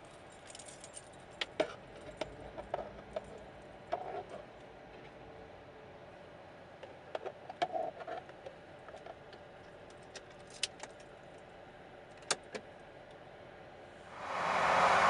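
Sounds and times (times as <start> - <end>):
light metallic clicks and clinks: 0.0 - 2.2
low background hum: 0.0 - 15.0.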